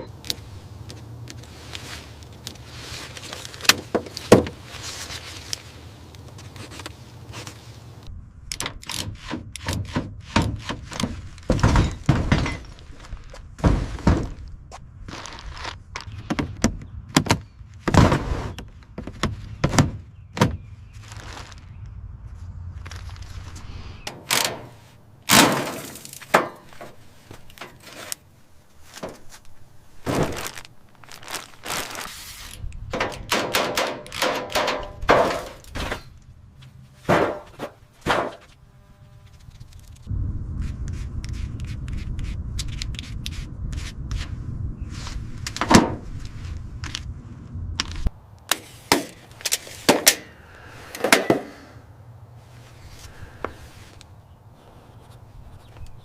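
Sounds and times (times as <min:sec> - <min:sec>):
knocks and thunks: 0:09.3 - 0:12.7, 0:13.6 - 0:14.5, 0:16.2 - 0:20.7, 0:37.1 - 0:38.4
steady low hum: 0:35.0 - 0:56.0.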